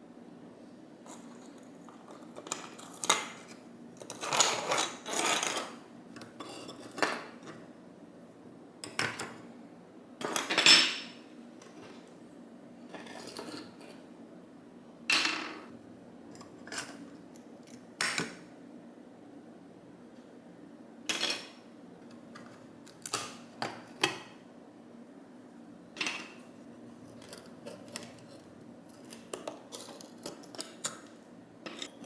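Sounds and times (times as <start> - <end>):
metal tools clinking and scraping: 31.7 - 32.0.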